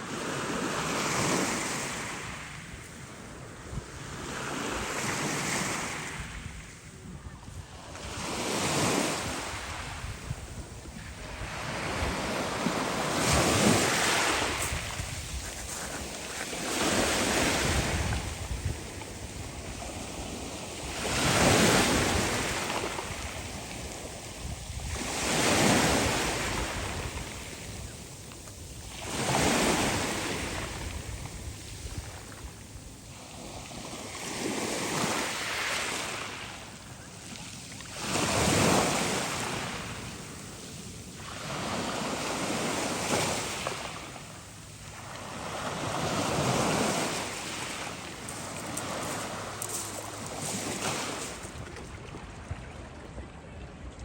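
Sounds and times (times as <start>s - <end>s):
waves breaking on shore: 0.0s - 54.0s.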